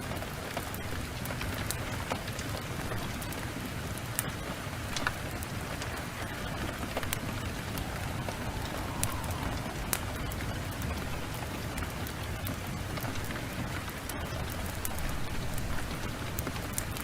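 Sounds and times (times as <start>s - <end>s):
heavy rain falling: 0.0s - 17.0s
wood fire crackling: 0.0s - 17.0s.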